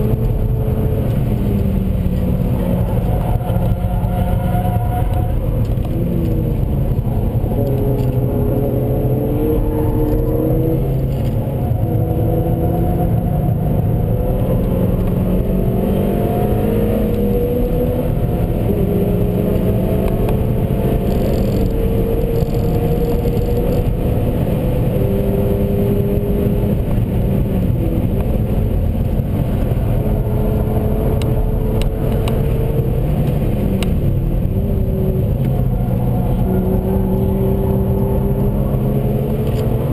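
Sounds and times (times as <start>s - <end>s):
car engine accelerating: 0.0s - 39.9s
road and tyre rumble: 0.0s - 39.9s.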